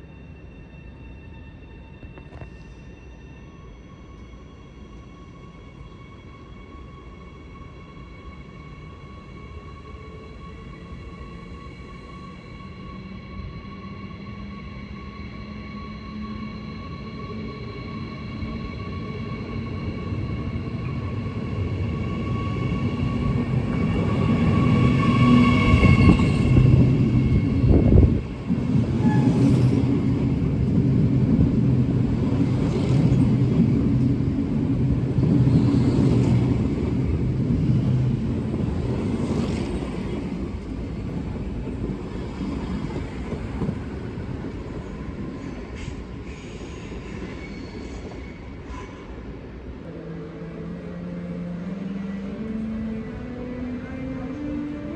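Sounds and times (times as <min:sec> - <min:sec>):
train wheels rumbling on rail: 0:15.3 - 0:50.0.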